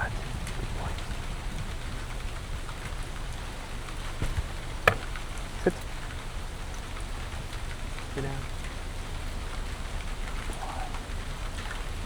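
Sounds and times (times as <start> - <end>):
rain hissing: 0.0 - 12.0
sharp taps: 4.2 - 5.8.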